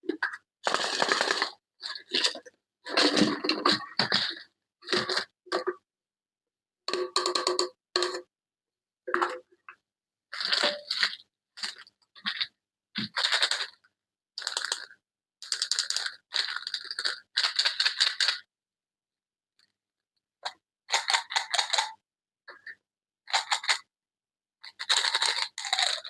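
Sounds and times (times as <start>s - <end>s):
packaging crinkling and tearing: 24.8s - 26.0s.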